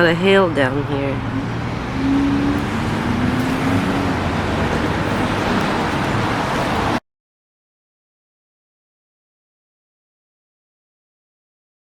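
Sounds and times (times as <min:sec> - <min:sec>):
road traffic noise: 0:00.0 - 0:07.0.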